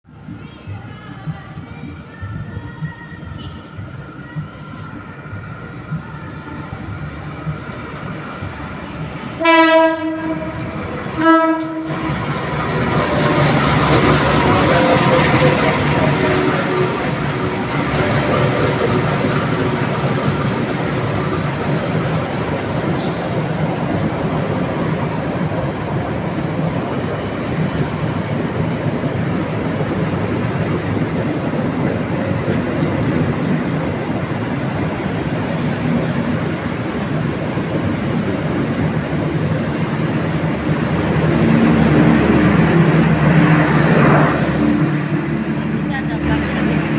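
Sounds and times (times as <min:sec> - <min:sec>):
train rumble and wheel clatter: 0:00.0 - 0:46.9
locomotive horn blasts: 0:09.4 - 0:12.2.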